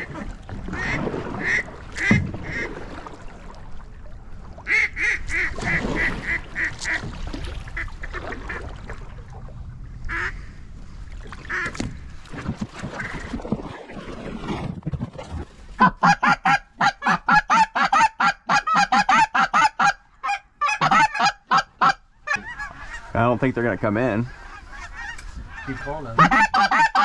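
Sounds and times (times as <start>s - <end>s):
duck call quacks: 10.1s - 10.4s, 15.8s - 23.1s, 24.3s - 27.0s.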